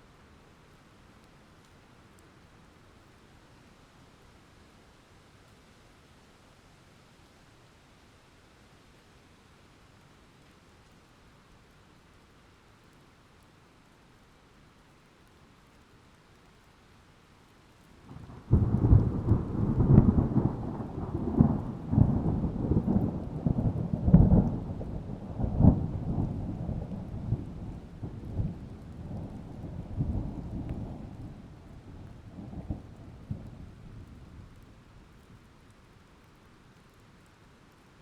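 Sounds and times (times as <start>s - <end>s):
rain: 0.0s - 38.0s
thunder cracking and rumbling: 18.1s - 34.6s.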